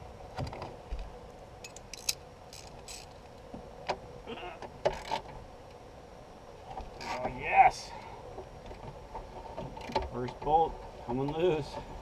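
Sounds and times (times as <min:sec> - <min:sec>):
hand tools clicking and scraping: 0:01.6 - 0:03.2.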